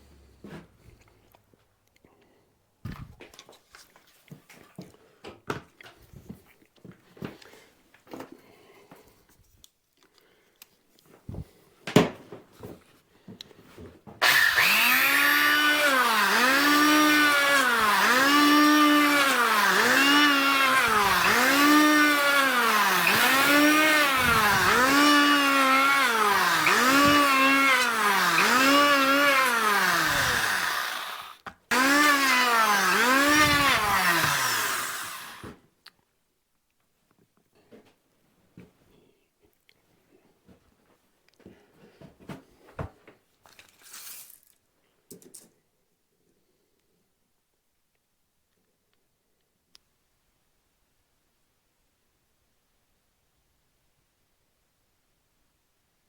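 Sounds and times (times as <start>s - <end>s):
power tool motor revving: 14.2s - 35.6s.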